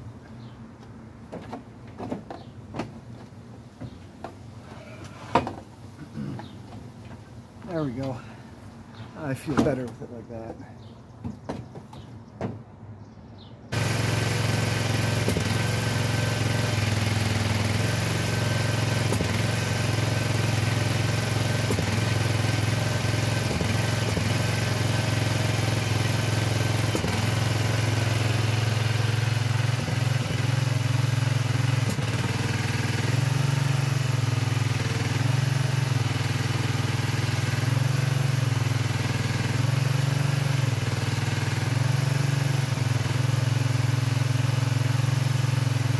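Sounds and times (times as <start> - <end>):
engine idling: 13.7 - 45.9.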